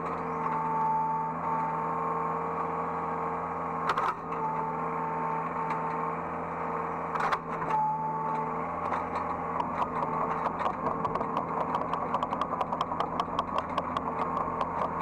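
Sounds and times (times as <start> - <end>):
excavator engine hum: 0.0 - 15.0
hydraulic whine: 7.2 - 15.0
short clatters: 8.9 - 15.0.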